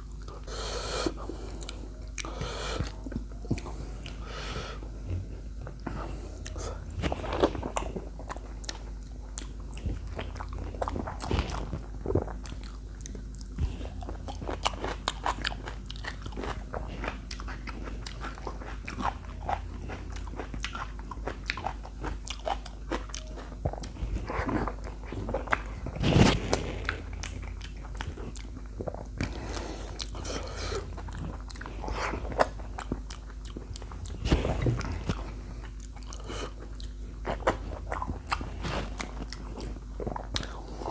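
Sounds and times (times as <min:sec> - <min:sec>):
crunching and wet chewing: 0:00.0 - 0:40.9
low steady hum: 0:00.0 - 0:40.9.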